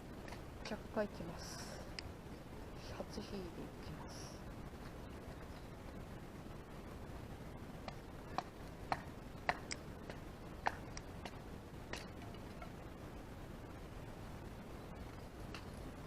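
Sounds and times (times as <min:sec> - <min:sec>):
background hiss: 0:00.0 - 0:16.0
fire ticks and pops: 0:00.1 - 0:00.8, 0:04.4 - 0:14.1, 0:14.7 - 0:16.0.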